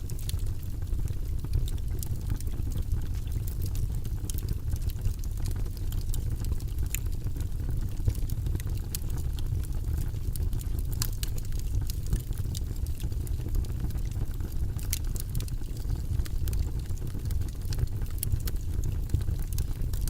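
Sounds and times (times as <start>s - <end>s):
burning logs crackling and popping: 0.0s - 20.0s
low rumble of flames: 0.0s - 20.0s.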